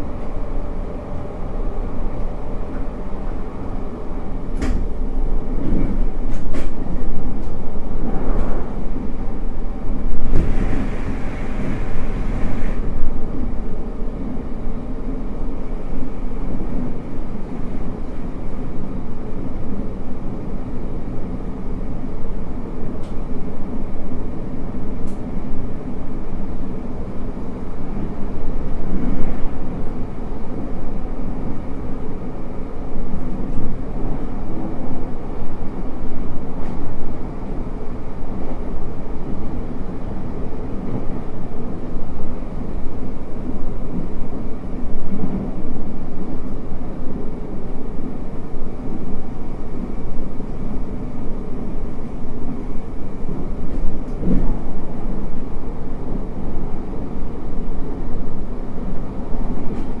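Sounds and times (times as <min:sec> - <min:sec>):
train wheels rumbling on rails: 0:00.0 - 1:00.0.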